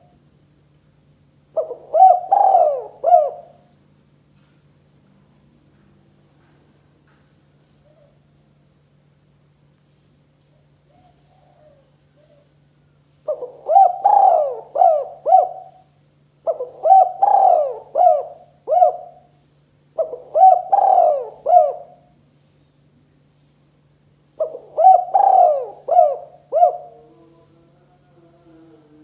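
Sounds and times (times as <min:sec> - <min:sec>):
dove cooing: 0:01.6 - 0:03.7, 0:10.9 - 0:12.5, 0:13.2 - 0:19.3, 0:20.0 - 0:22.1, 0:24.4 - 0:29.0.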